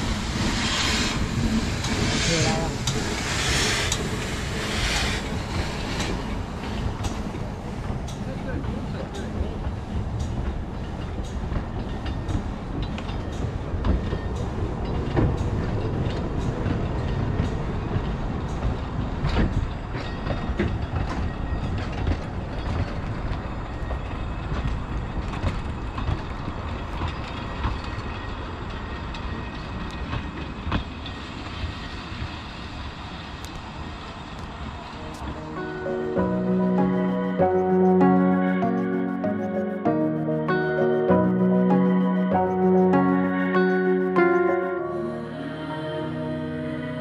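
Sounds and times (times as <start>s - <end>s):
train rumble: 0.0s - 47.0s
wheels clicking over rail joints: 1.4s - 32.4s.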